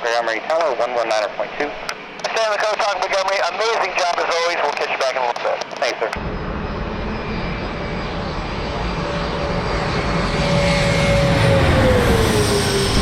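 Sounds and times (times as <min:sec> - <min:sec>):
jet engines passing: 0:00.0 - 0:13.0.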